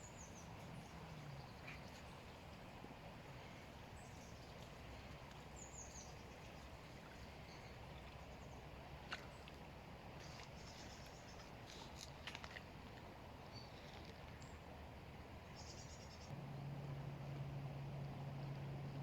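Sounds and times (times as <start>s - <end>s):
faint bird chirp: 0.0s - 9.5s, 10.2s - 12.0s, 13.5s - 14.6s, 15.5s - 16.3s.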